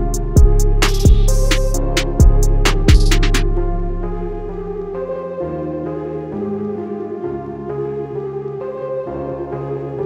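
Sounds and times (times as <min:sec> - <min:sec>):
drum hits: 0:00.4 - 0:03.4.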